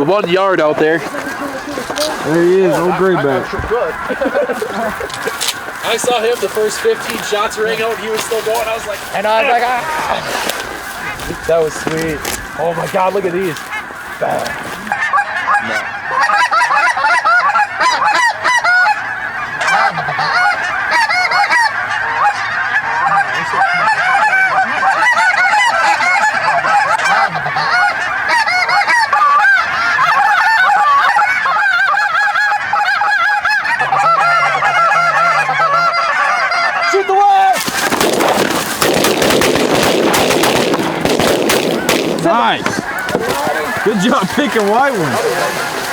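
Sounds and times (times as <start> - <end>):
geese honking: 0.0 - 45.9
shotgun fire: 37.8 - 43.5.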